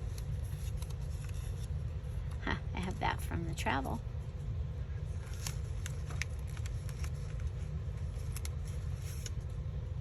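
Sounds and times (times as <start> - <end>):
paper rustling: 0.0 - 2.3, 5.1 - 9.6
low background rumble: 0.0 - 10.0.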